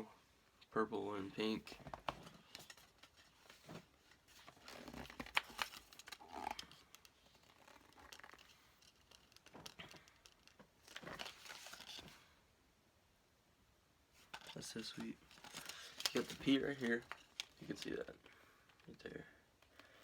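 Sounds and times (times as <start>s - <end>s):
plastic packaging crinkling: 4.3s - 12.1s, 14.2s - 18.2s.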